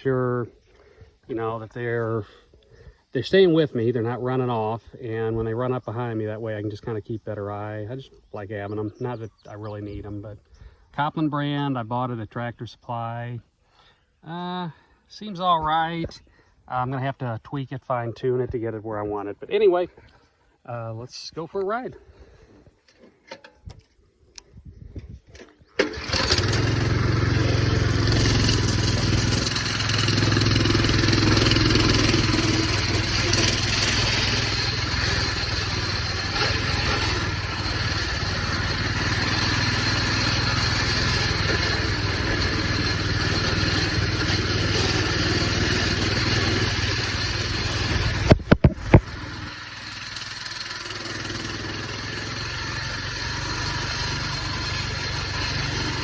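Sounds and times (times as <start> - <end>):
minibike engine running: 25.8 - 56.0
sharp knocks: 48.1 - 49.2.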